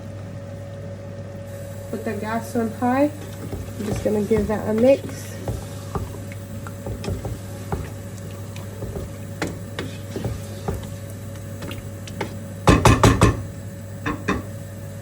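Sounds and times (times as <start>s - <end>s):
steady hum: 0.0s - 15.0s
spoon stirring food in pan: 2.8s - 13.4s
loud knocks: 3.4s - 8.1s, 8.8s - 10.9s, 11.6s - 13.5s.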